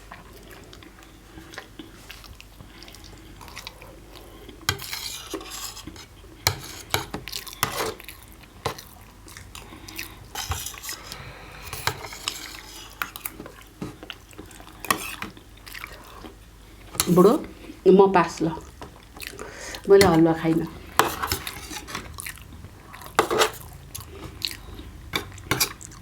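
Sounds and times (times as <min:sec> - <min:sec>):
utensils clinking on plates: 0:20.9 - 0:22.1, 0:23.2 - 0:24.4, 0:25.1 - 0:26.0.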